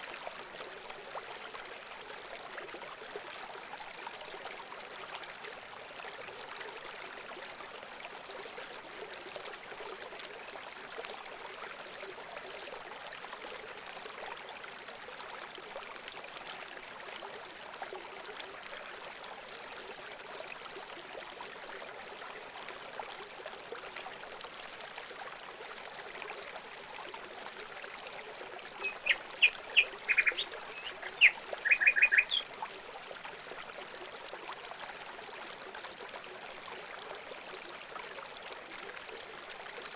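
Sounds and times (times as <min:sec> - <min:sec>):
water trickling: 0:00.1 - 0:39.9
bird sharp calls: 0:28.8 - 0:32.5.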